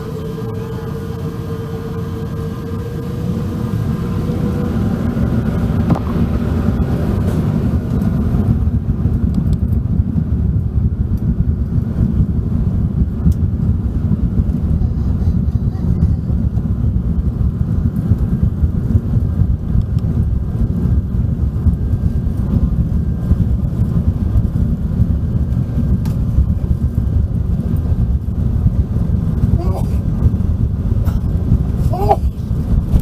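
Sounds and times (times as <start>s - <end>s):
faint whine: 0.0s - 9.9s
airplane cabin engine rumble: 0.0s - 33.0s.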